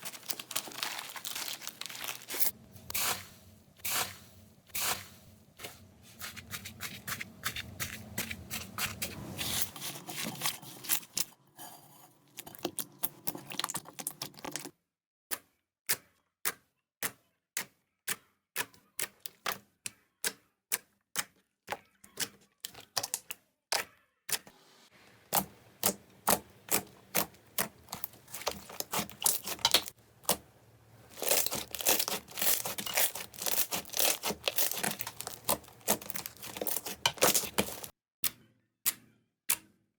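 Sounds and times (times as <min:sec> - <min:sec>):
slime crackling and clicking: 0:25.8 - 0:30.4, 0:31.1 - 0:37.9.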